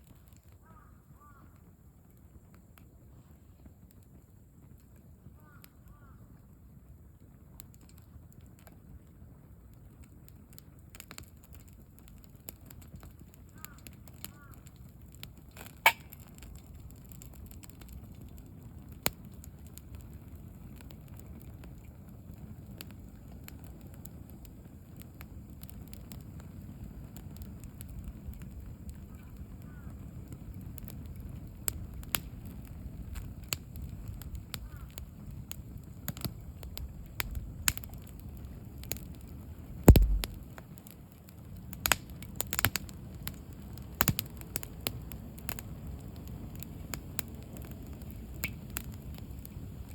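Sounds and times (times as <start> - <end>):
fire crackles and pops: 0.0 - 49.9
campfire flames rushing: 6.7 - 49.9
loud crack with low thud: 39.9 - 40.4.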